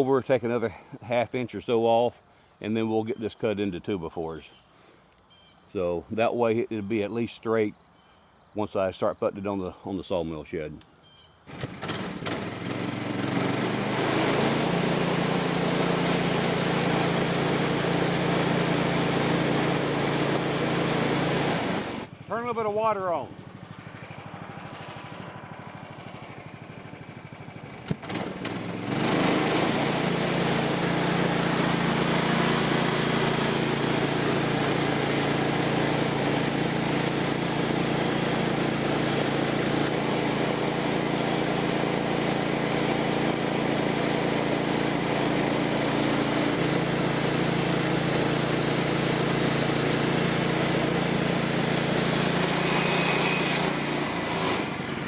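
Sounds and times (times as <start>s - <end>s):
band saw blade cutting wood: 11.5s - 22.1s, 28.0s - 55.0s
sawmill gas engine running: 11.5s - 55.0s.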